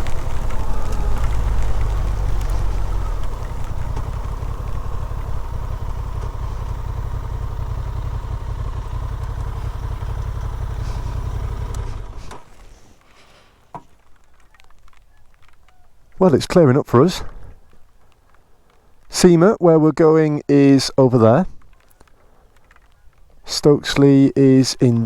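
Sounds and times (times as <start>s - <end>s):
motorcycle engine running: 0.0s - 13.0s
faint clicks: 0.0s - 16.3s, 17.2s - 19.2s, 21.5s - 24.1s.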